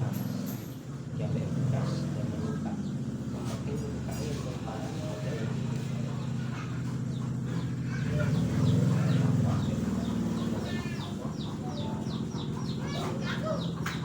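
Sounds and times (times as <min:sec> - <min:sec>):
bird chirping: 0:05.7 - 0:14.0.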